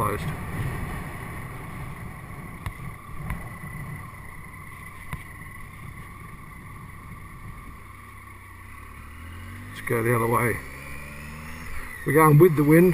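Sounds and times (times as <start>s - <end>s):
wind buffeting helmet: 0.0s - 7.9s
steady high whine: 0.0s - 12.9s.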